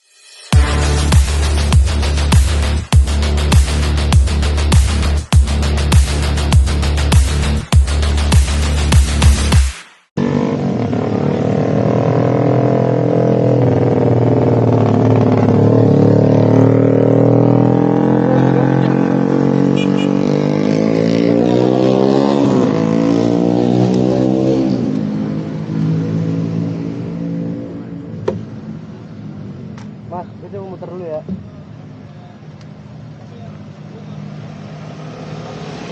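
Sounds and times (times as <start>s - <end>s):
motorcycle engine revving: 10.2s - 30.1s, 32.9s - 35.9s.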